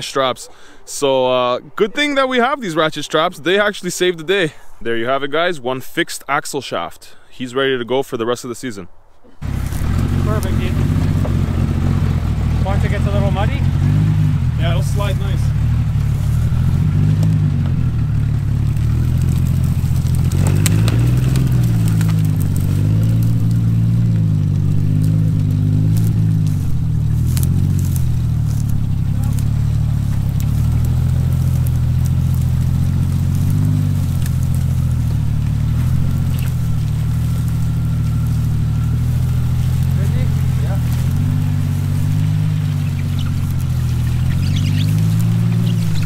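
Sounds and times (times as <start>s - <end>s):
engine running at low revs: 9.4s - 46.0s.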